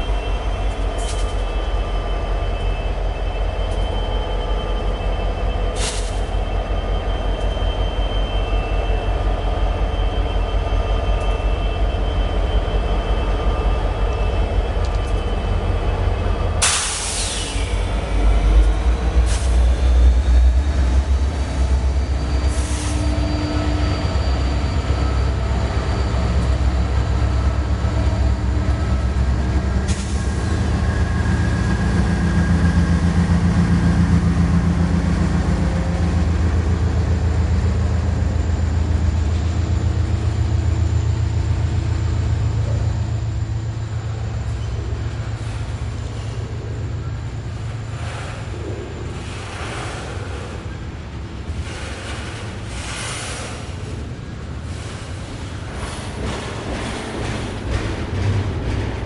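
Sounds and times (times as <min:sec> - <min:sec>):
train rumbling on rails: 0:00.0 - 0:59.0
wheel squeal: 0:21.8 - 0:27.4.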